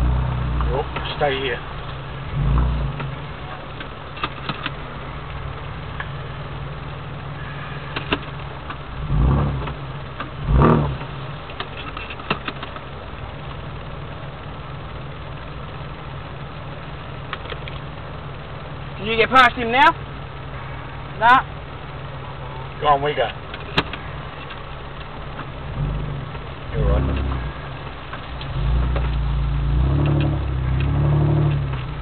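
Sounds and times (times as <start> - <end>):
car engine idling: 0.0 - 32.0
short low rumbles: 25.5 - 32.0.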